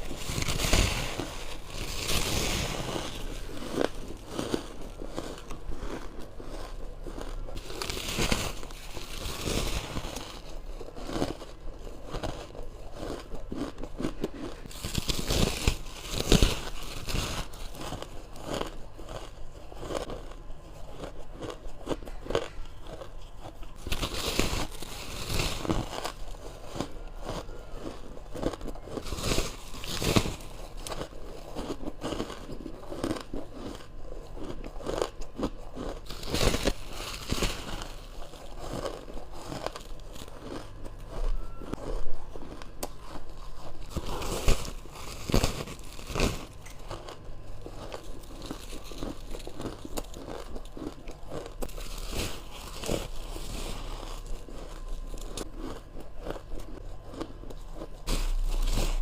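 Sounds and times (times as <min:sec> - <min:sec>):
crunching ice: 0:00.0 - 0:59.0.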